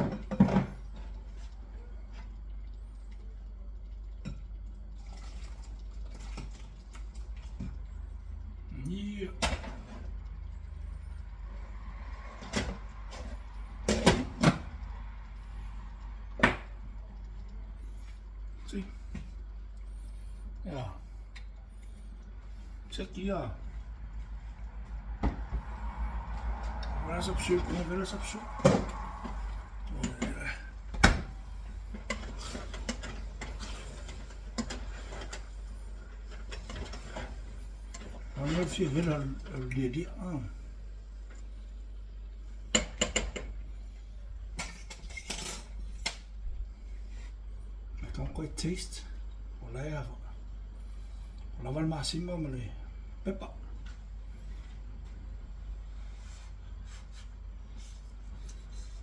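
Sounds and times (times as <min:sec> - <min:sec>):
steady low hum: 0:00.0 - 0:59.0
utensils clinking and scraping cookware: 0:31.9 - 0:35.7, 0:36.3 - 0:39.8.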